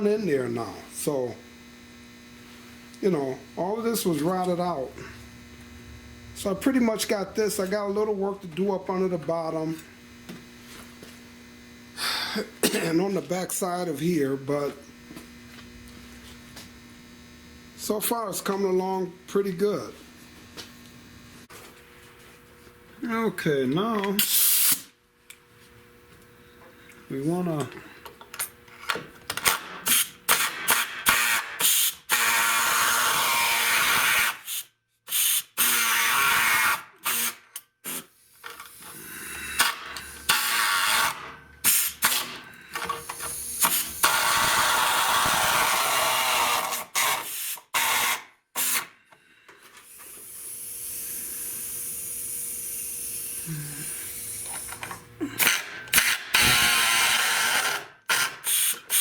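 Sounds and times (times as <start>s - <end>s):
power tool on sheet metal: 29.3s - 49.0s, 49.7s - 59.0s.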